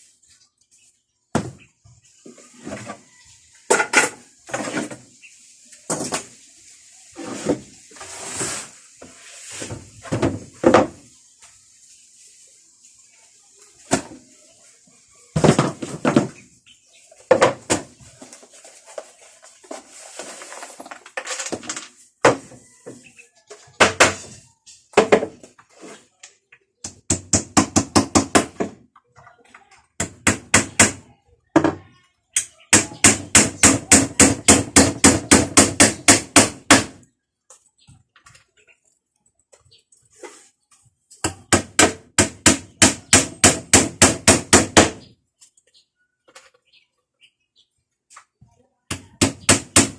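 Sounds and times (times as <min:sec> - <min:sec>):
wood knocks and thuds: 0:01.3 - 0:01.7, 0:09.6 - 0:11.1, 0:15.4 - 0:16.5, 0:17.3 - 0:18.0, 0:24.9 - 0:25.6.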